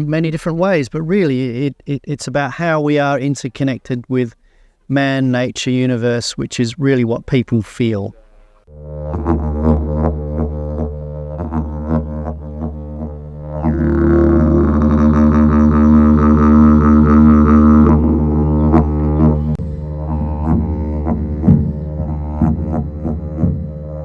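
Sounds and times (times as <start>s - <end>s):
didgeridoo drone: 8.7s - 24.0s.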